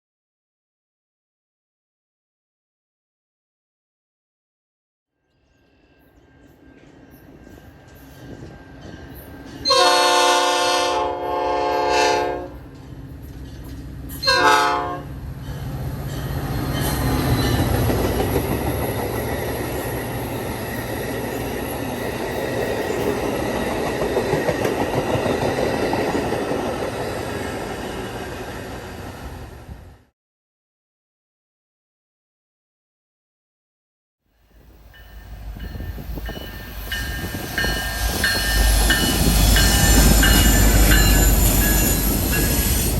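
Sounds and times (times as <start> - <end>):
train rumbling past: 5.5 - 30.1, 34.4 - 42.9
train horn blasts: 9.6 - 12.7, 14.2 - 15.2.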